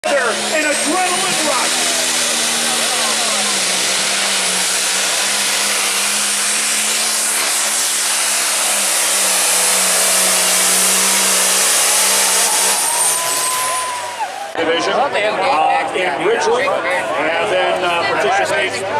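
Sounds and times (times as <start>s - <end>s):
diesel tractor engine at full throttle: 0.0s - 14.6s.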